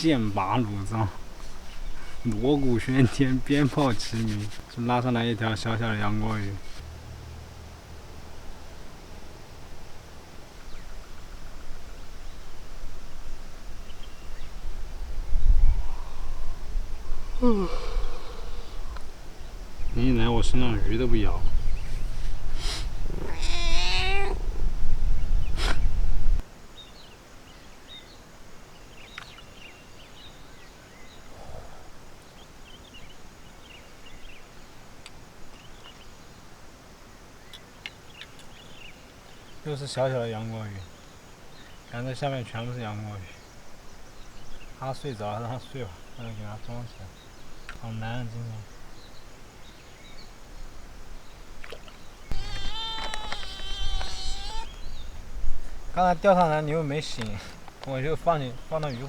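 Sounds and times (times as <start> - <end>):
wind buffeting microphone: 10.7 - 26.4, 50.1 - 59.0
faint bird chirps: 37.4 - 59.0
small clicks: 51.6 - 54.2
faint high chirps: 52.3 - 55.2.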